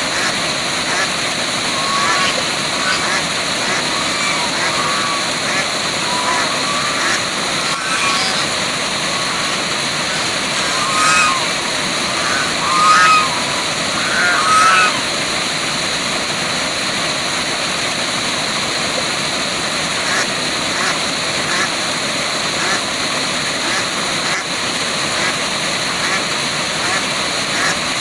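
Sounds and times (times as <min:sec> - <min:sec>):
waterfall rushing: 0:00.0 - 0:28.0
short animal calls: 0:00.9 - 0:15.2.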